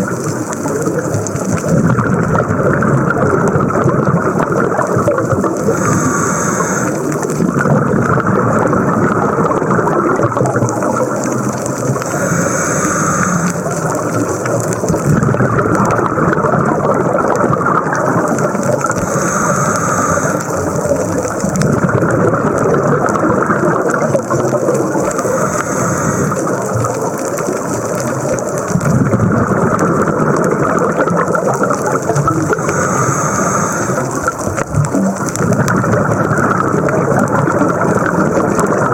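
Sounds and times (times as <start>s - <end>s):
exhaled bubbles rushing underwater: 0.0s - 38.9s
regulator inhalation hiss: 5.4s - 7.4s, 10.9s - 14.9s, 18.2s - 21.4s, 24.9s - 26.9s, 31.9s - 34.6s.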